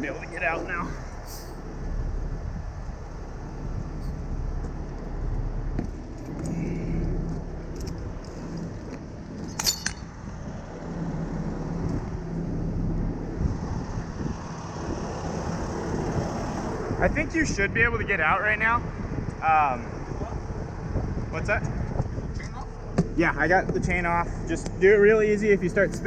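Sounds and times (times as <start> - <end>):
heavy truck engine idling: 0.0 - 14.8
chain clanking: 7.7 - 10.2
metallic chain clinks: 9.4 - 10.1.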